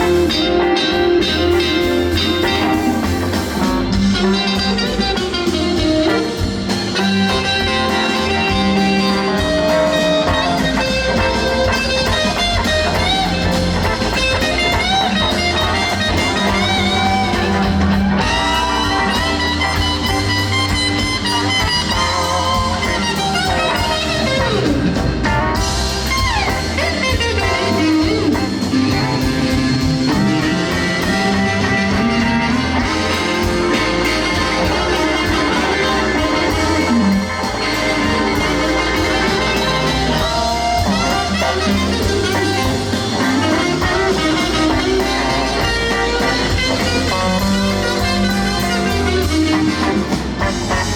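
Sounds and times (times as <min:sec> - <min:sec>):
bass and drums: 0:00.0 - 0:50.9
electric guitar solo bending notes: 0:00.0 - 0:50.9.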